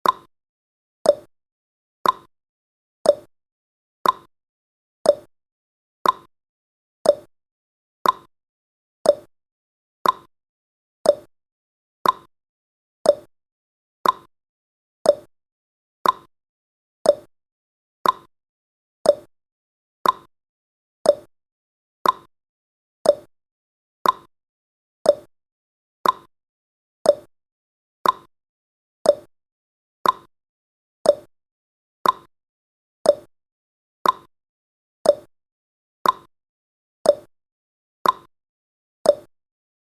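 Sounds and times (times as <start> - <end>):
timer tick-tock clicks: 0.0 - 0.3, 1.0 - 1.3, 2.0 - 2.3, 3.0 - 3.3, 4.0 - 4.3, 5.0 - 5.3, 6.0 - 6.3, 7.0 - 7.3, 8.0 - 8.3, 9.0 - 9.3, 10.0 - 10.3, 11.0 - 11.3, 12.0 - 12.3, 13.0 - 13.3, 14.0 - 14.3, 15.0 - 15.3, 16.0 - 16.3, 17.0 - 17.3, 18.0 - 18.3, 19.0 - 19.3, 20.0 - 20.3, 21.0 - 21.3, 22.0 - 22.3, 23.0 - 23.3, 24.0 - 24.3, 25.0 - 25.3, 26.0 - 26.3, 27.0 - 27.3, 28.0 - 28.3, 29.0 - 29.3, 30.0 - 30.3, 31.0 - 31.3, 32.0 - 32.3, 33.0 - 33.3, 34.0 - 34.3, 35.0 - 35.4, 36.0 - 36.3, 37.0 - 37.4, 38.0 - 38.3, 39.0 - 39.4.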